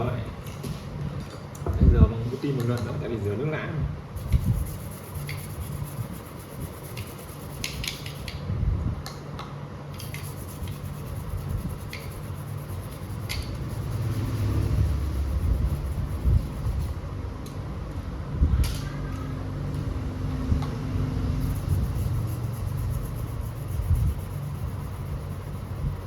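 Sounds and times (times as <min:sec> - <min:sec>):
low steady hum: 0:03.0 - 0:26.0
sharp clicks of tools: 0:13.2 - 0:13.7.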